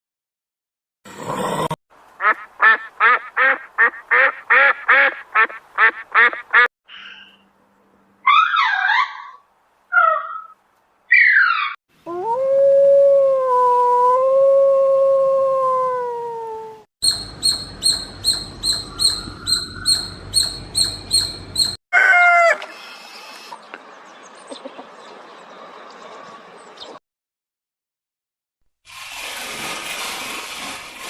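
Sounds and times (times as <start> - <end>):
rapid high chirps: 17.0 - 21.8.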